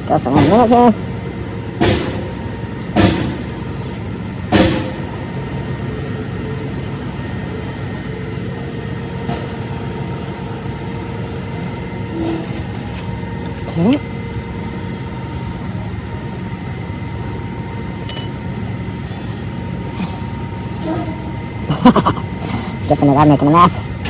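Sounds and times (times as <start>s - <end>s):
sharp knocks: 1.8s - 2.4s, 3.0s - 3.5s, 4.5s - 5.0s.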